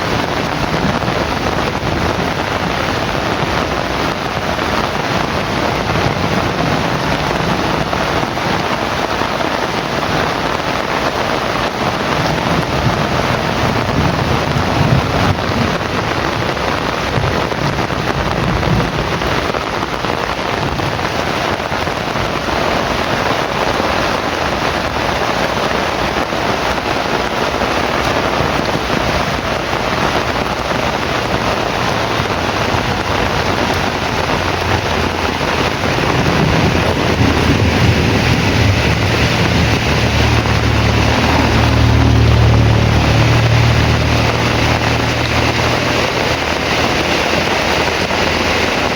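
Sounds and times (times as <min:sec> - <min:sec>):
heavy rain falling: 0:00.0 - 0:48.9
deep low rumble: 0:24.5 - 0:48.9.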